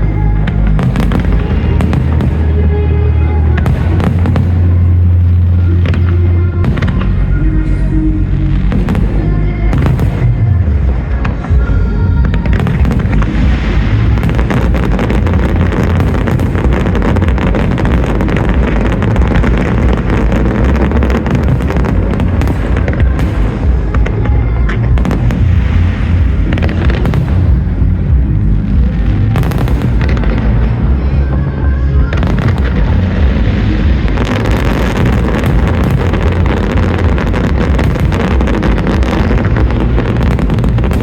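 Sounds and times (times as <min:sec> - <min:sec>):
fireworks booms: 0:00.0 - 0:41.0
fireworks crackling and popping: 0:00.0 - 0:41.0.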